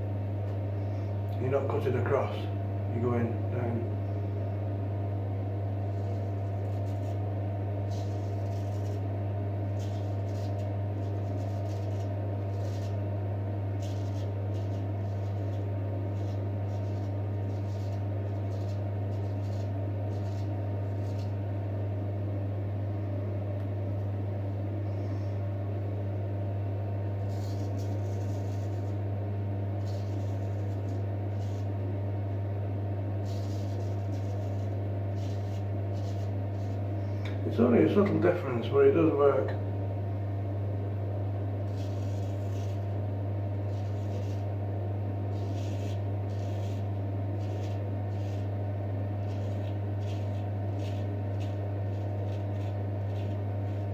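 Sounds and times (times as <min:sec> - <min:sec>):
steady low hum: 0:00.0 - 0:53.9
razor scraping through beard: 0:05.8 - 0:07.3, 0:07.9 - 0:13.1, 0:13.7 - 0:21.4, 0:27.2 - 0:29.0, 0:29.7 - 0:31.7, 0:33.2 - 0:36.9, 0:41.7 - 0:43.0, 0:43.6 - 0:44.5, 0:45.3 - 0:53.9.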